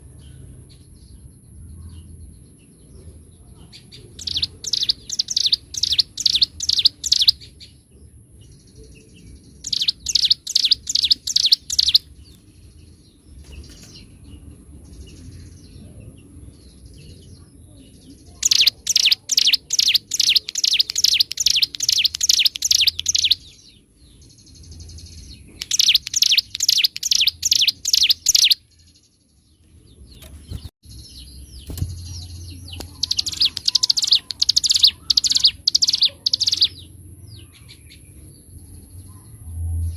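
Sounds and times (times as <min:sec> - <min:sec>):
bird rapid drilling song: 0:03.8 - 0:07.8, 0:08.4 - 0:17.3, 0:17.9 - 0:28.9, 0:30.0 - 0:38.0.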